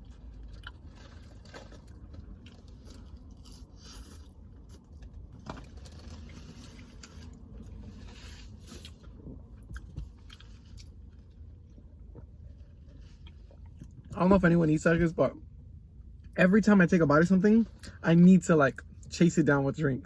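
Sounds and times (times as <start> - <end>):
person chewing crunchy food: 0.0 - 14.0.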